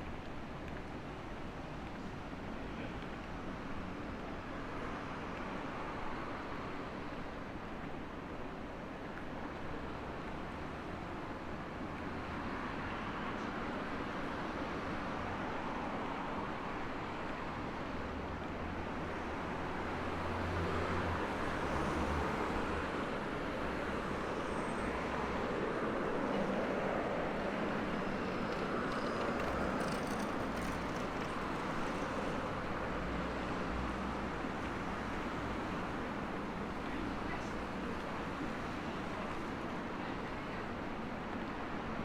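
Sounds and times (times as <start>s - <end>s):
road traffic noise: 0.0s - 42.0s
vehicles passing: 18.0s - 39.7s.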